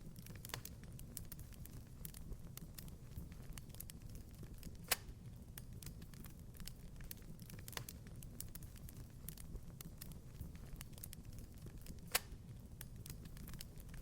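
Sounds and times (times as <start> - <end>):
low fire rumble: 0.0 - 14.0
wood fire crackling: 0.0 - 14.0.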